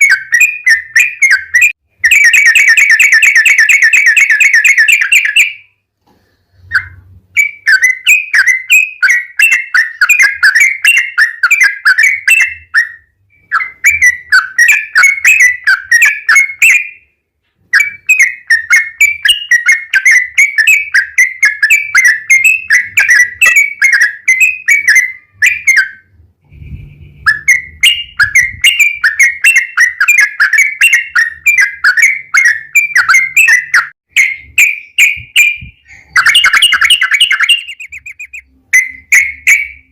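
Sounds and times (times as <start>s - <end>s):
bulbul singing chattering song: 27.0s - 39.9s.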